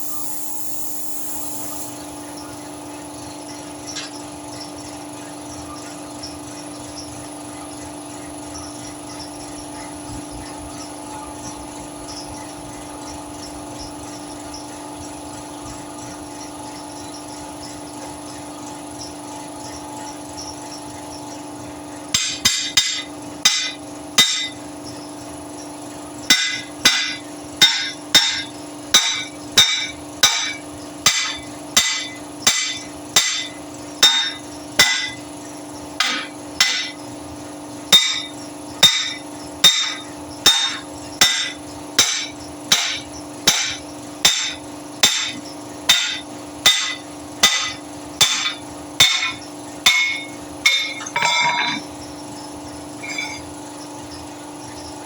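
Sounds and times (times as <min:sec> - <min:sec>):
faint steady hum: 0:00.0 - 0:03.3
ringing hammer blows: 0:26.3 - 0:35.2, 0:36.0 - 0:37.0, 0:37.9 - 0:52.0, 0:52.9 - 0:53.6.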